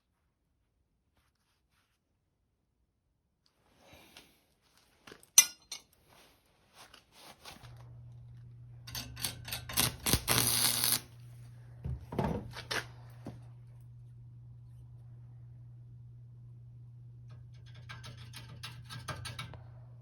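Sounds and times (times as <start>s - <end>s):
low steady hum: 2.5s - 20.0s
metal pieces clinking and knocking: 5.4s - 6.0s.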